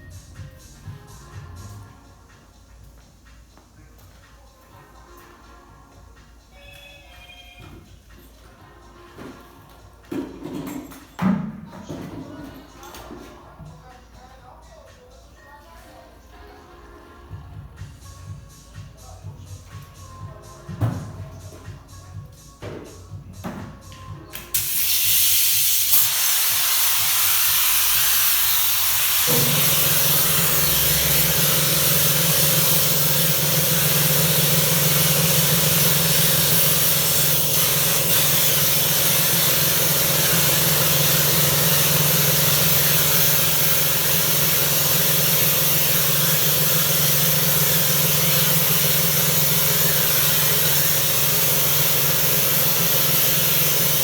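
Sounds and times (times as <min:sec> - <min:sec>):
pressure washer spraying water: 0:24.4 - 0:54.0
pump motor humming: 0:26.0 - 0:54.0.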